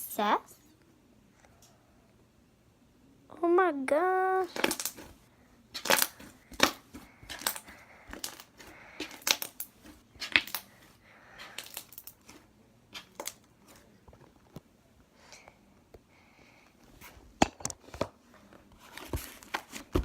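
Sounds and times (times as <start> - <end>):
slime crackling and popping: 4.5 - 5.1, 5.8 - 10.7, 11.4 - 13.4.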